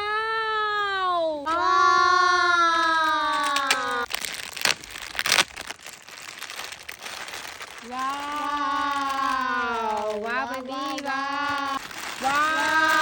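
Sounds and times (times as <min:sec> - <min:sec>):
plastic wrapper crinkling: 0:02.8 - 0:13.0.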